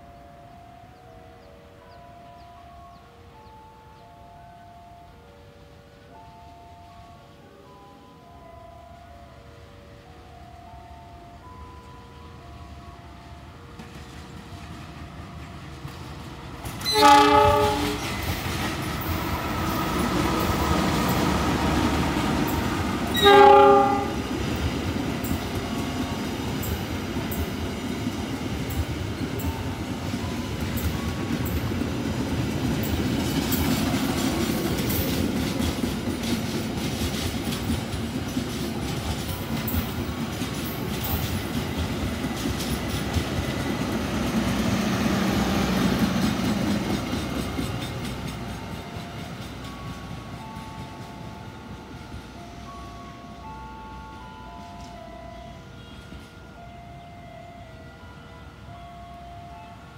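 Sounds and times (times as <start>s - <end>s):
train wheels clattering: 13.8s - 51.4s
locomotive horn blast: 16.8s - 18.1s, 23.1s - 24.3s.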